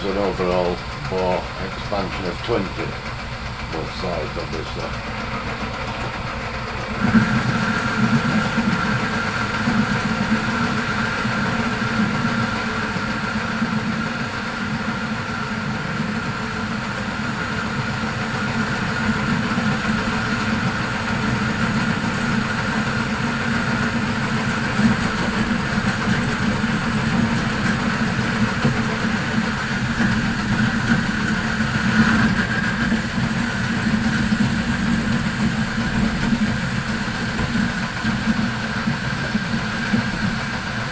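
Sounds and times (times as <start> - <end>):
steady high-pitched tone: 0.0 - 6.0
lathe motor and gears running: 0.0 - 40.9.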